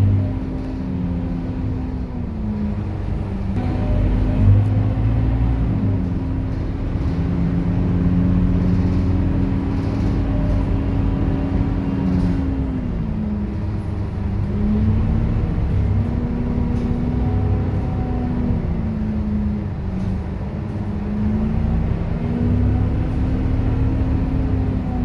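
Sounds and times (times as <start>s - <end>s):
bus diesel engine running: 0.0s - 25.0s
steady engine whine: 0.0s - 25.0s.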